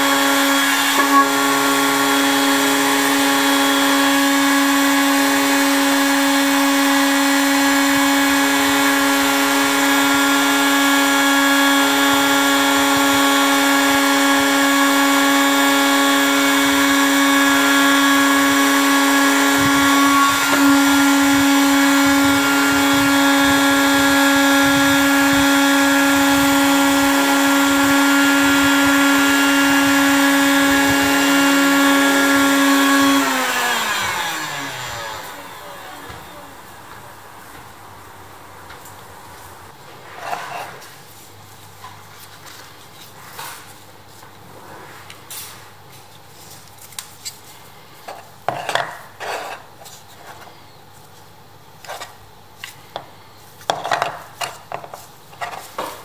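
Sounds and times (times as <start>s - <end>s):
heat gun fan whine: 0.0s - 37.0s.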